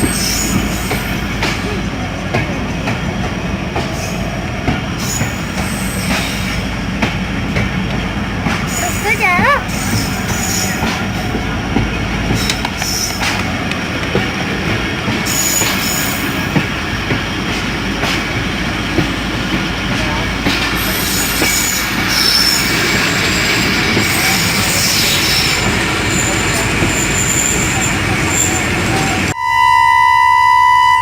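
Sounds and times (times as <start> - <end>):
high wheel squeals: 0.0 - 1.8, 5.0 - 6.7, 8.7 - 10.9, 15.2 - 16.6, 20.8 - 31.0
rail clicks: 0.0 - 29.4
train wheels rumbling on track: 0.0 - 29.4.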